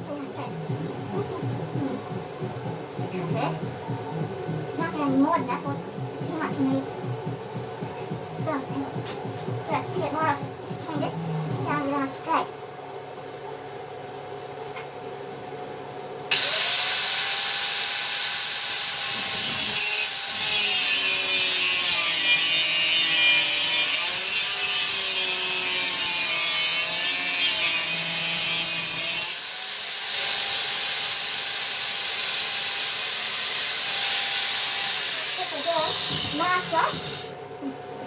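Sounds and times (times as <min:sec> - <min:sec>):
power tool cutting steel: 0:16.3 - 0:37.4.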